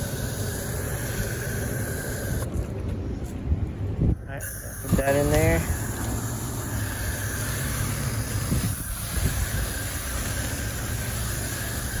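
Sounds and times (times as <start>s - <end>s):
sprayer hissing: 0.0s - 2.5s, 4.4s - 12.0s
low mechanical hum: 0.0s - 12.0s.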